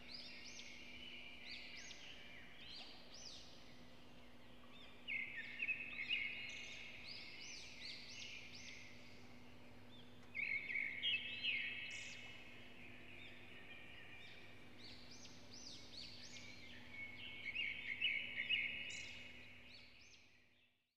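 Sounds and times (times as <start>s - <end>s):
songbird rapid chirping: 0.0s - 20.8s.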